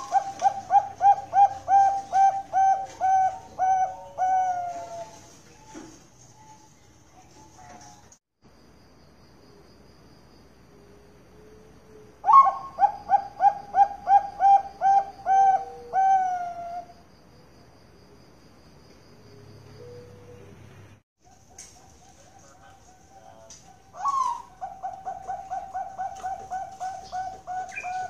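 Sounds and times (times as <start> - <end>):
dove cooing: 0.0 - 5.4, 12.2 - 16.9, 21.3 - 28.0.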